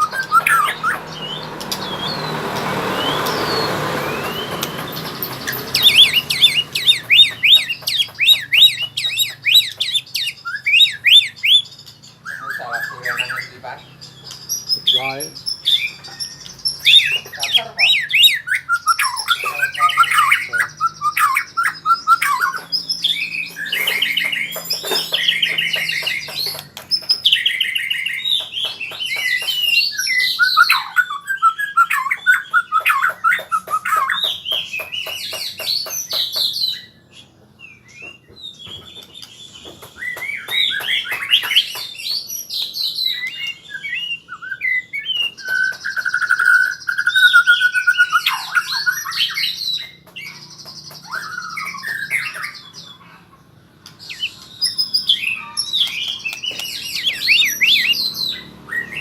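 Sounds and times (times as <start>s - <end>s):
bird singing whistles and trills: 0.0s - 59.0s.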